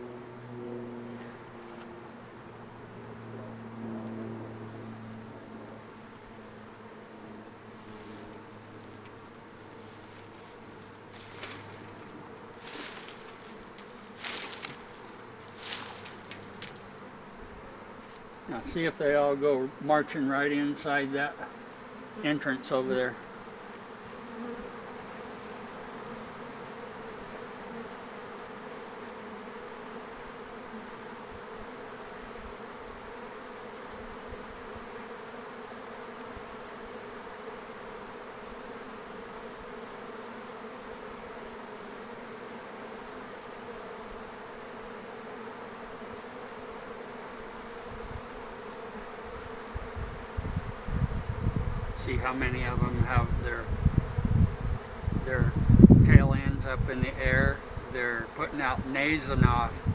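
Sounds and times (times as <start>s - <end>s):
bee swarm buzzing: 0.0s - 59.9s.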